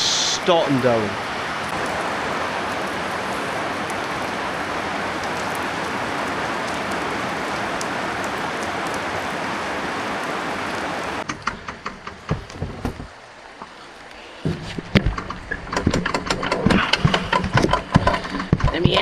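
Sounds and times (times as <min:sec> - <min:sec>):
heavy rain pouring: 0:00.0 - 0:19.0
clicks and knocks: 0:11.2 - 0:13.2, 0:14.5 - 0:19.0.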